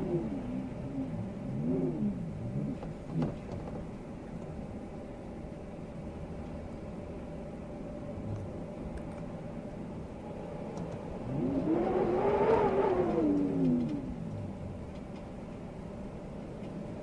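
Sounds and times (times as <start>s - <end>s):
steady wind: 0.0s - 17.0s.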